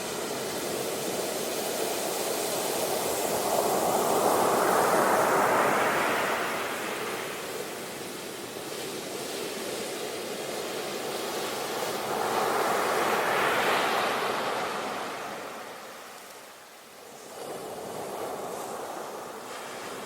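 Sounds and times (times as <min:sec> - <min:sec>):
ocean waves washing onto shore: 0:00.0 - 0:20.0.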